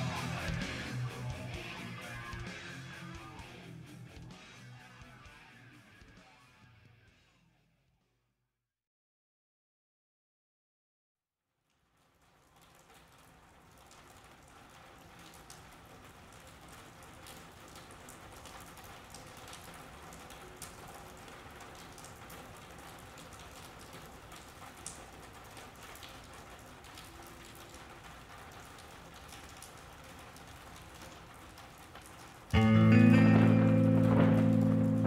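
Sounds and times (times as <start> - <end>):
rain pattering: 0.0 - 5.4, 11.7 - 35.0
loud rock band music: 0.0 - 6.7, 32.6 - 35.0.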